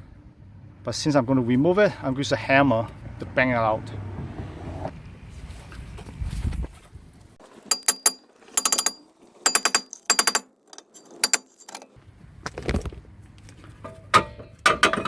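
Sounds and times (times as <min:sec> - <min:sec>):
hammer striking metal rotor: 0:07.7 - 0:11.7.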